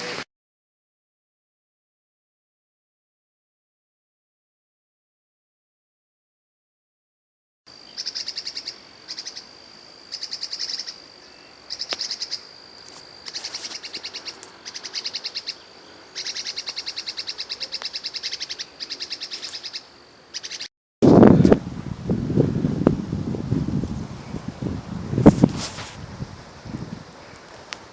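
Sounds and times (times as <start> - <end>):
songbird trilling: 7.9 - 12.5, 13.3 - 20.7
wind buffeting microphone: 21.0 - 27.9.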